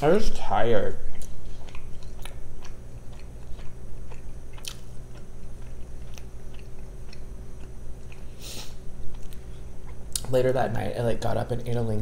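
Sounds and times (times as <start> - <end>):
person chewing food: 1.0 - 10.3
wet mouth clicks: 1.1 - 8.3.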